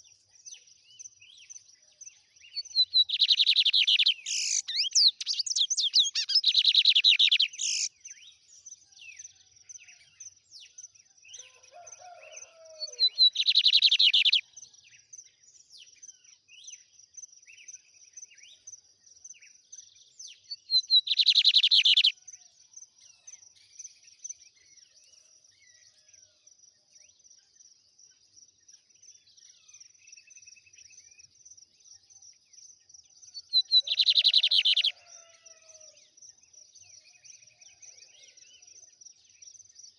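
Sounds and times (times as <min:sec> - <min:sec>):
bird singing fast trills: 0:02.5 - 0:08.0, 0:12.9 - 0:14.4, 0:20.5 - 0:22.1, 0:33.4 - 0:35.0.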